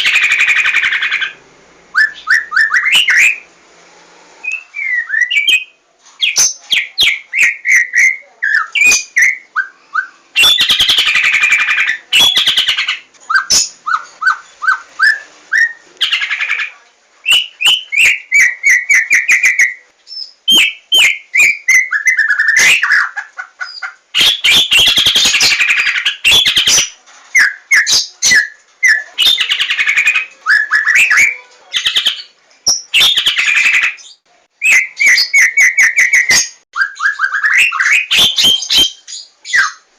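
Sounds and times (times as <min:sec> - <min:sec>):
bird singing varied song: 0:00.0 - 0:03.5, 0:04.4 - 0:39.9.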